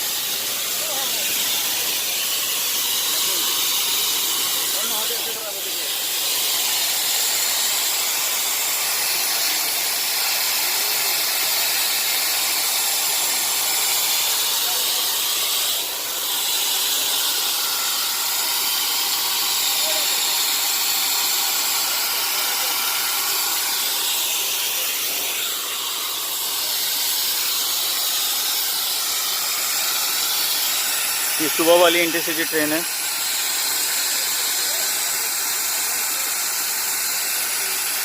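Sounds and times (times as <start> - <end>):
steady bright hiss: 16.4 - 33.2.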